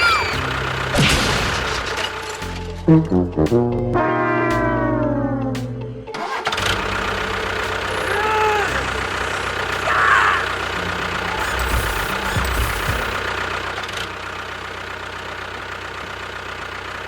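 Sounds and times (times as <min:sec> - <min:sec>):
short squeaky chirps: 0:00.0 - 0:00.6, 0:11.2 - 0:13.3
engine starting and running: 0:00.0 - 0:17.0
falling trombone-like music sting: 0:02.9 - 0:05.6.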